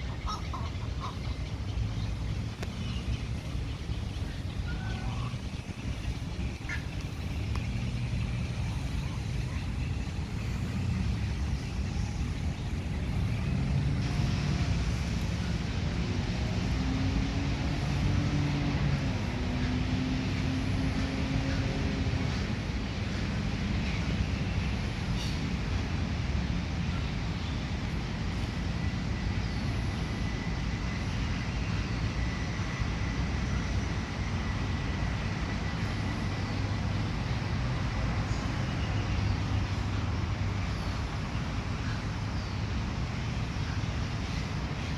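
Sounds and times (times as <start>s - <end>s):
road traffic rumble: 0.0s - 44.9s
passing vehicle engine: 0.2s - 23.7s.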